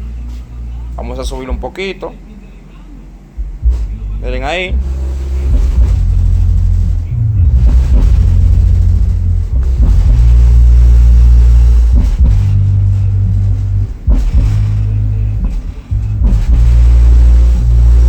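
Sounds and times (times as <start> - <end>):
loud deep bass notes: 3.3 - 18.0.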